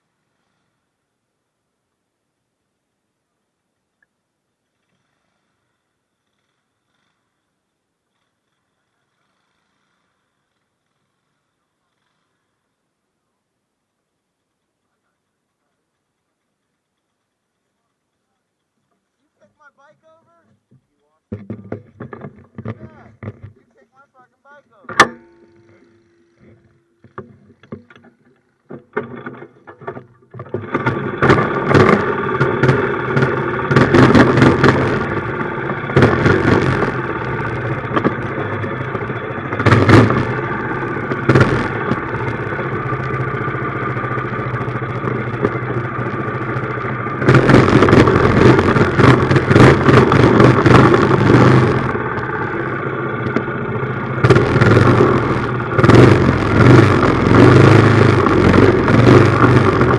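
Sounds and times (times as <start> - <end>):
small engine starting and revving: 4.7 - 12.8, 24.7 - 59.9
faint clicks and knocks: 13.9 - 19.4, 24.8 - 52.6.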